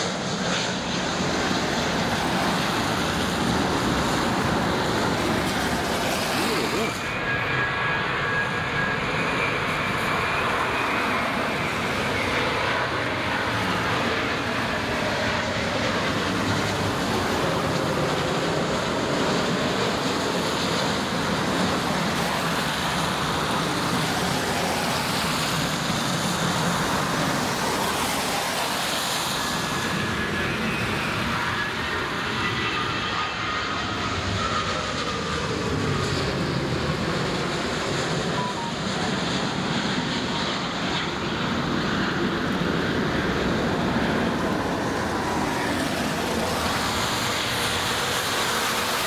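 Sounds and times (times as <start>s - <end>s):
engines and traffic roar: 0.0s - 49.0s
faint high steady tones: 38.2s - 39.3s.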